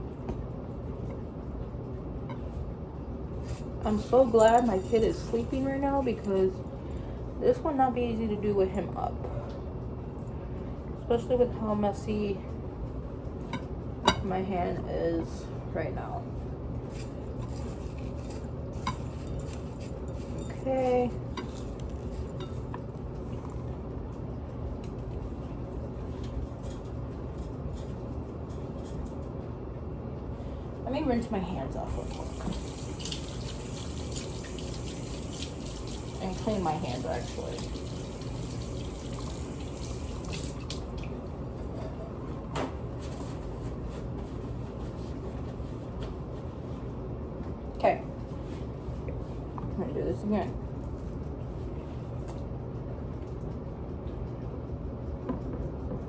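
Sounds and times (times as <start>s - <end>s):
steady low hum: 0.0s - 56.0s
tap water running: 31.8s - 41.4s.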